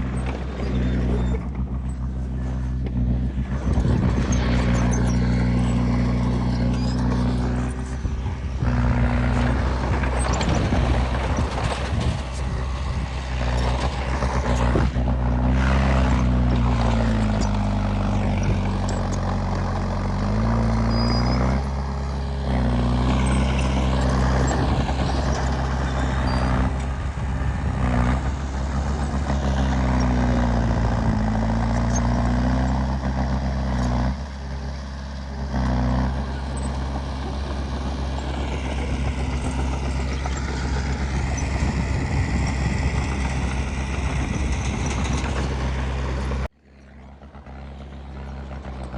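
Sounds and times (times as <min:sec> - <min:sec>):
clanking: 0:00.0 - 0:27.0
bulldozer diesel engine under load: 0:00.0 - 0:48.9.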